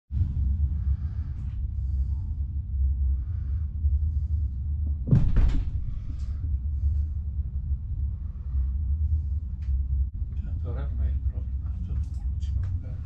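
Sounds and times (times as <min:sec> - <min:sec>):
train rumbling from inside coach: 0:03.9 - 0:13.0.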